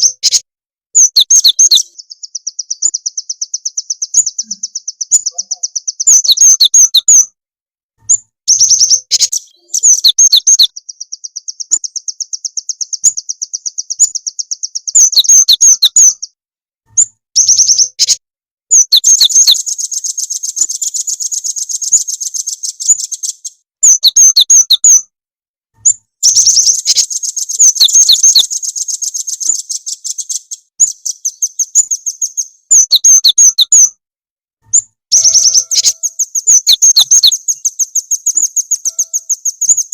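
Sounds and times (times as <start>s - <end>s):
sharp bird chirps: 0.0s - 7.4s, 8.0s - 25.1s, 25.8s - 34.0s, 34.6s - 39.9s
rapid high bird trills: 1.0s - 7.3s, 8.5s - 16.2s, 26.2s - 33.9s, 34.7s - 39.9s.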